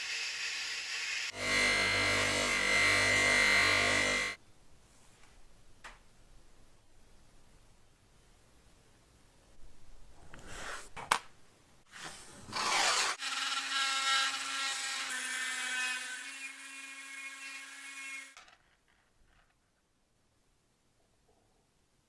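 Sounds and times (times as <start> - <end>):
small electric motor whining: 0.0 - 4.4.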